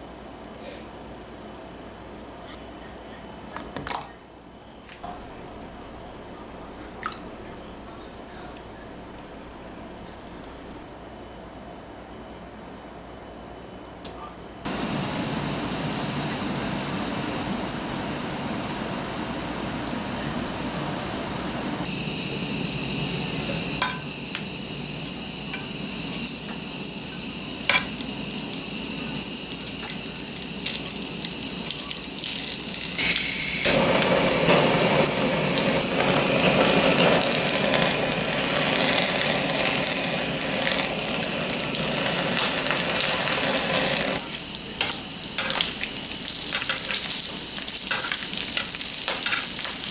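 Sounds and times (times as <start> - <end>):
food sizzling in a pan: 14.7 - 49.9
kitchen utensils clicking: 23.8 - 24.4, 25.5 - 28.5, 42.1 - 49.9.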